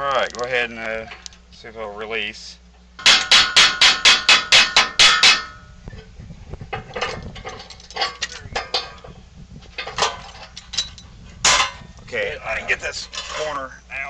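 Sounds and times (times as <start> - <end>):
hammer striking steel: 3.0 - 5.6
metal clinks and rattles: 6.8 - 11.8.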